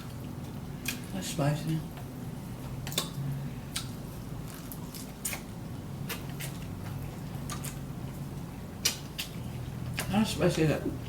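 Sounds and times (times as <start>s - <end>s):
low steady hum: 0.0s - 11.0s
chewing noodles: 3.7s - 10.2s.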